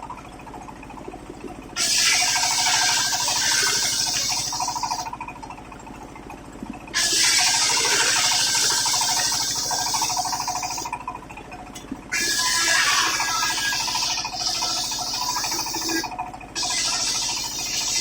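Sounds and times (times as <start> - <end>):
circular saw cutting wood: 1.8 - 5.1, 7.0 - 10.9, 12.1 - 18.0
saw blade spinning hum: 1.8 - 5.1, 7.0 - 11.0, 12.1 - 18.0.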